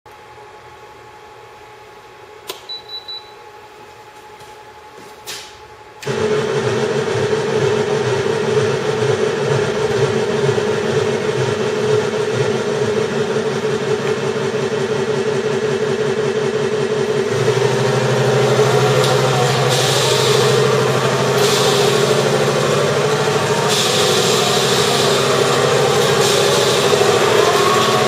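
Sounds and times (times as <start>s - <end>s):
simulated tank engine idling: 6.1s - 28.0s.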